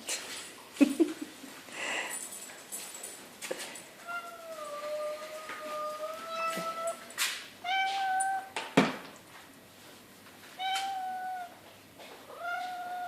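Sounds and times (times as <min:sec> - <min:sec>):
puppies whining: 0:04.2 - 0:07.1.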